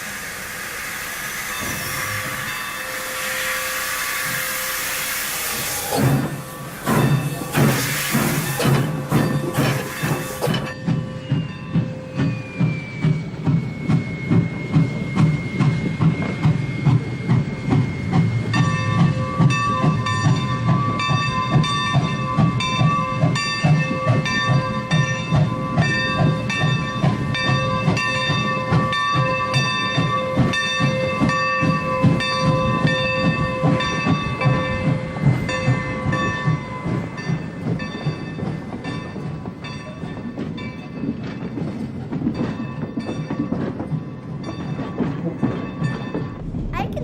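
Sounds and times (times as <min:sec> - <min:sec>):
steam locomotive chuffing: 0:00.0 - 0:47.0
higher ringing tones: 0:01.3 - 0:04.9.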